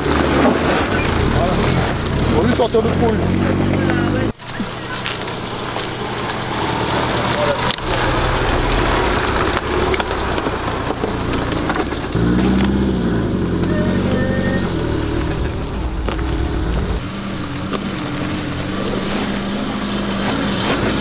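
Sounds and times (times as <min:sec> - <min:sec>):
car engines at low revs: 0:00.0 - 0:21.0
sticks cracking under tyres: 0:07.2 - 0:12.8.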